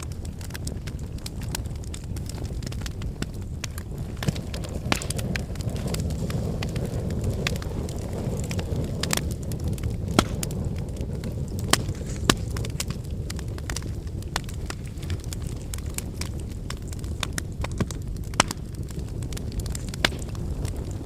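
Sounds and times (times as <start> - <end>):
cooking fire crackling: 0.0 - 21.0
sharp pops: 4.2 - 5.9, 10.1 - 10.5.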